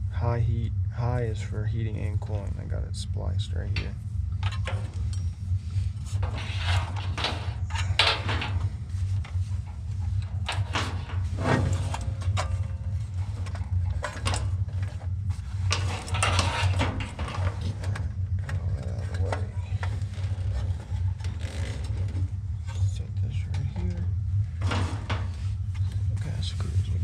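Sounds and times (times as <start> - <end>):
steady low hum: 0.0 - 27.0
tools and metal parts rattling: 4.4 - 5.4, 6.0 - 22.2.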